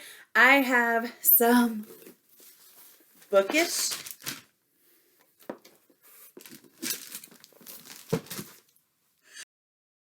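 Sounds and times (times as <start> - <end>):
paper crinkling and rustling: 2.0 - 4.5, 5.4 - 8.8.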